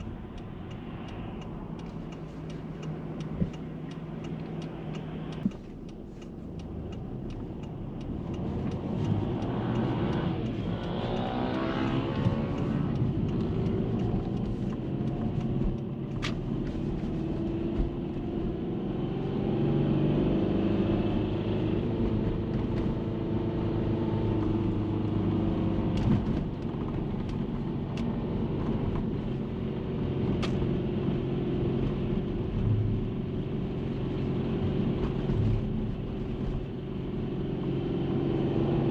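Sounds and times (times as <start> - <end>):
car engine revving: 0.0 - 26.4.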